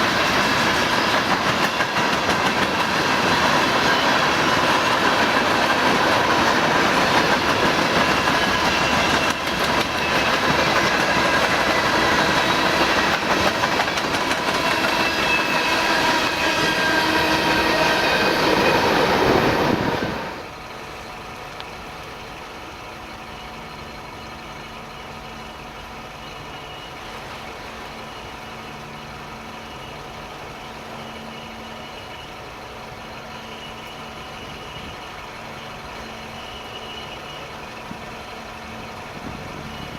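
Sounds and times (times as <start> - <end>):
train wheels rumbling on rail: 0.0 - 39.9
high squealing tones: 0.8 - 20.5.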